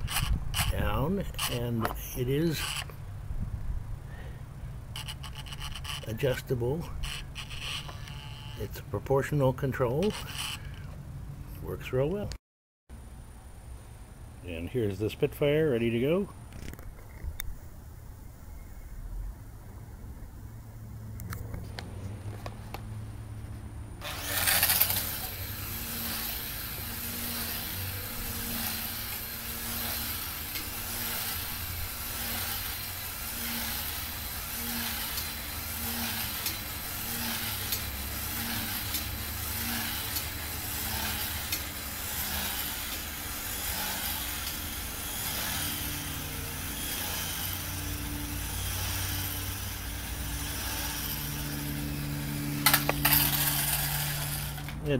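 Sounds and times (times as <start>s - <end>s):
model plane electric motor whine: 0.0s - 1.6s, 2.4s - 3.0s, 4.9s - 8.8s, 10.0s - 11.0s, 24.0s - 54.8s.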